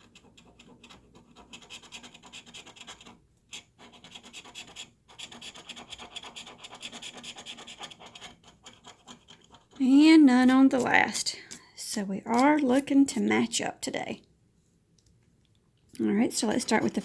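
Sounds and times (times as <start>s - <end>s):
scratching coating off ticket: 6.2s - 13.3s.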